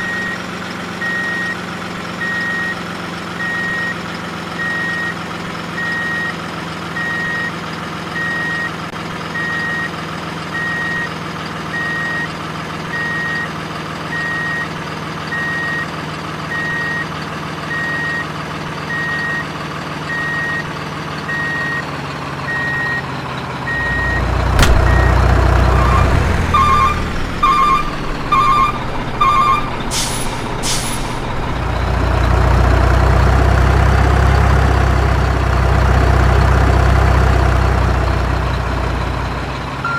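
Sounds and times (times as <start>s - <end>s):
truck reversing beeper: 0.0s - 34.8s, 37.8s - 39.9s
diesel engine idling: 0.0s - 39.9s
air brake hisses: 29.9s - 31.2s.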